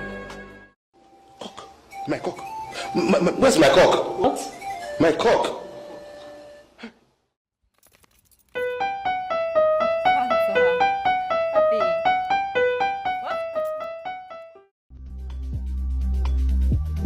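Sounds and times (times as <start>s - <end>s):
piano melody: 8.6s - 14.7s.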